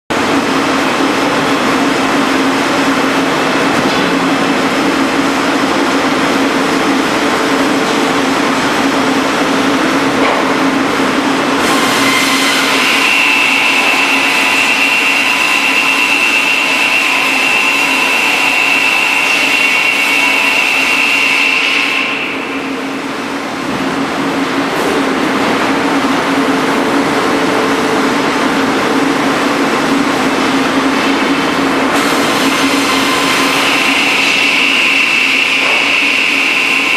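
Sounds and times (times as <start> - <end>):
sawing machine humming: 0.1 - 36.9
saw blades whining through wood: 11.6 - 22.3.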